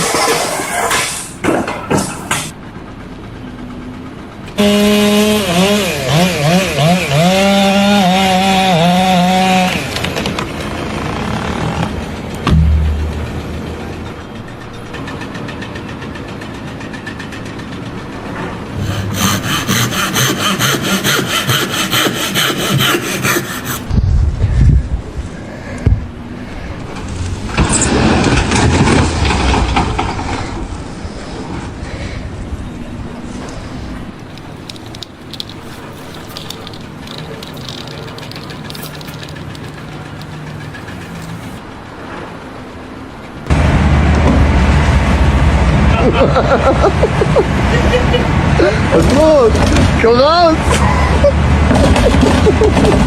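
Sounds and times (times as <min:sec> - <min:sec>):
wood being sawn: 0:04.6 - 0:10.2, 0:18.7 - 0:23.9, 0:34.3 - 0:41.6
loud machine sound: 0:08.8 - 0:15.6, 0:17.8 - 0:23.9
machinery humming: 0:09.8 - 0:23.9, 0:32.3 - 0:42.0
loud low thud and rumble: 0:12.4 - 0:14.2
light clicks and clatter: 0:34.2 - 0:41.6.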